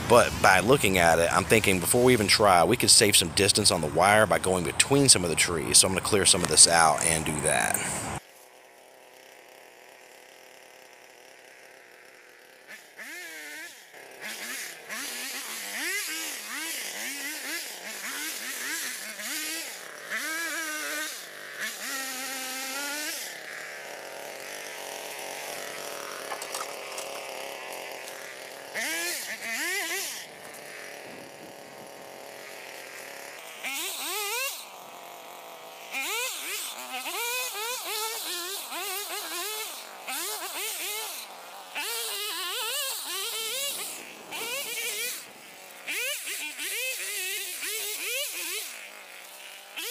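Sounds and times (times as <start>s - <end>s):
lawnmower engine straining: 0.0s - 8.8s, 23.9s - 29.5s
mower chopping through brush: 0.0s - 49.9s.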